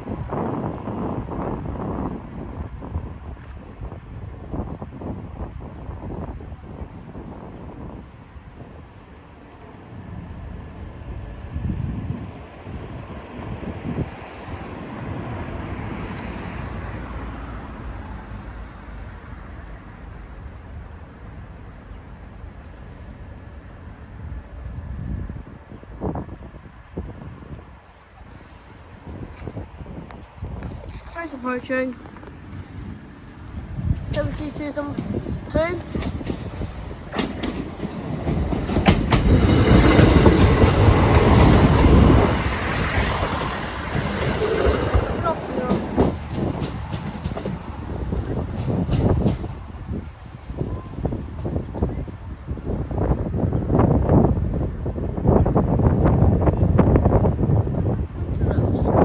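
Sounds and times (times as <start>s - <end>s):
wind on microphone: 0.0s - 9.0s, 9.9s - 17.0s, 24.3s - 59.0s
train rumble: 0.0s - 59.0s
train wheels clicking over rail joints: 33.4s - 50.2s.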